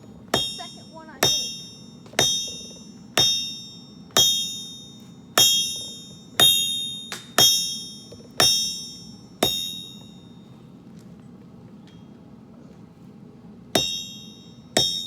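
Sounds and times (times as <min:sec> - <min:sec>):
hammer striking steel on anvil: 0:00.3 - 0:10.4, 0:13.8 - 0:15.0.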